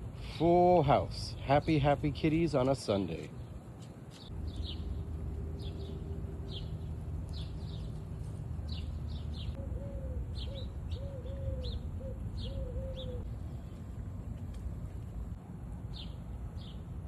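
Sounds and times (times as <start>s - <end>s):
steady low rumble: 0.0s - 17.0s
small birds chirping: 0.1s - 17.0s
low arching bird calls: 4.2s - 13.3s.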